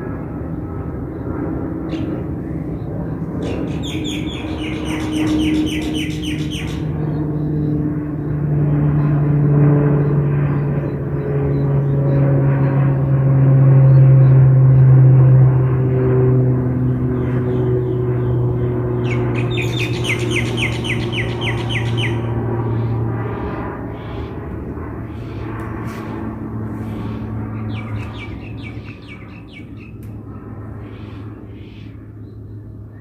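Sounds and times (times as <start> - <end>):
aircraft engine drone: 0.0 - 33.0
bird chirping rapidly: 3.4 - 7.5, 19.0 - 22.9, 27.0 - 30.0.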